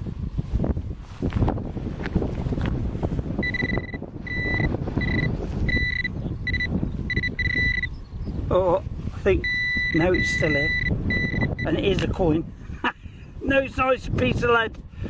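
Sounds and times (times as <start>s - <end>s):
wind rumble: 0.0s - 15.0s
pinpointer beeping: 3.4s - 7.9s, 9.4s - 12.0s.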